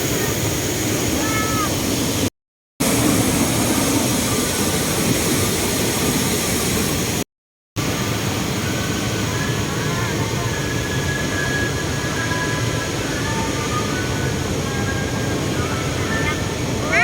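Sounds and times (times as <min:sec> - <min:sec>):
waterfall roaring: 0:00.0 - 0:07.2, 0:11.8 - 0:17.0.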